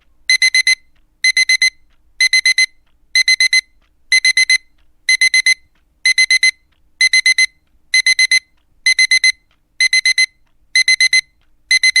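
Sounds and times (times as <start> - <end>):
alarm clock beeping: 0.3 - 12.0.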